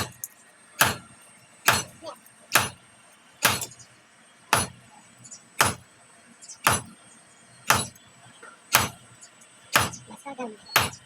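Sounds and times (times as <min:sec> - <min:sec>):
hammer striking metal on anvil: 0:00.8 - 0:01.0, 0:01.6 - 0:02.8, 0:03.4 - 0:03.8, 0:04.5 - 0:04.8, 0:05.6 - 0:05.8, 0:06.6 - 0:06.9, 0:07.7 - 0:08.0, 0:08.7 - 0:09.0, 0:09.8 - 0:10.0, 0:10.8 - 0:11.0.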